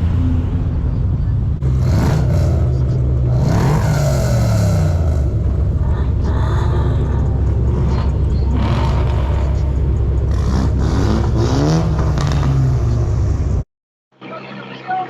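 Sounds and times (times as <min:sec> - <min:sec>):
car engine revving with deep rumble: 0:00.0 - 0:13.6.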